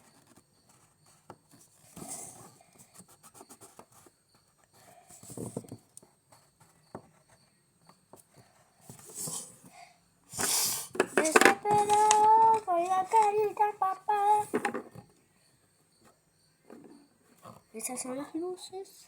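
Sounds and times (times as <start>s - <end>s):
brief rustling: 10.4s - 15.0s.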